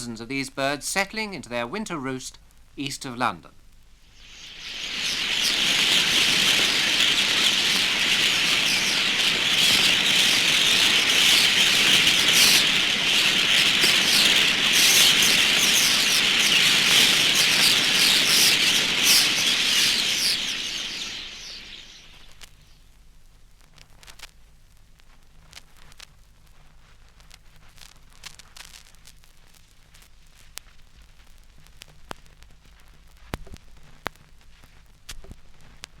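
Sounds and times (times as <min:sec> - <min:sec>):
flock of starlings chattering: 0:04.2 - 0:22.4.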